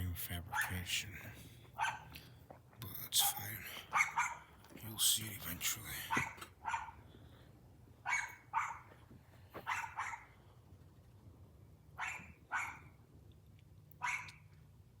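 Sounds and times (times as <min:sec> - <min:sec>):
dog barking: 0:00.5 - 0:00.8, 0:01.8 - 0:02.1, 0:03.9 - 0:04.5, 0:06.1 - 0:07.0, 0:08.0 - 0:09.0, 0:09.6 - 0:10.4, 0:12.0 - 0:13.0, 0:14.0 - 0:14.4.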